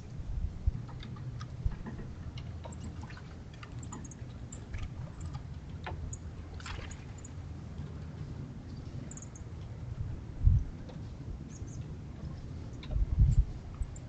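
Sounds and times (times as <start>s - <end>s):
low rumble: 9.8s - 11.7s.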